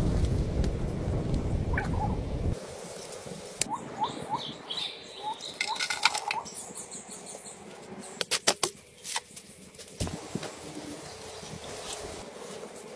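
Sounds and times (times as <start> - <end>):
low rumble: 0.0 - 2.6
high bird twittering: 3.7 - 7.3.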